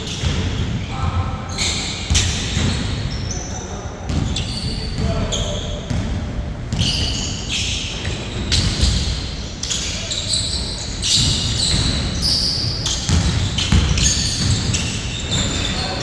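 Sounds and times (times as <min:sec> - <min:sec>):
shoe squeaks: 0:00.0 - 0:06.0, 0:06.7 - 0:16.0
basketball bouncing: 0:11.2 - 0:15.6.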